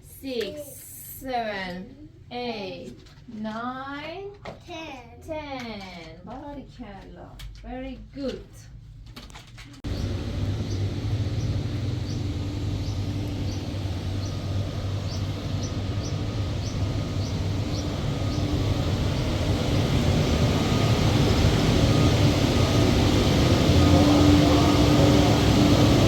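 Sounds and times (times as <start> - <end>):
low mechanical rumble: 8.7 - 26.0.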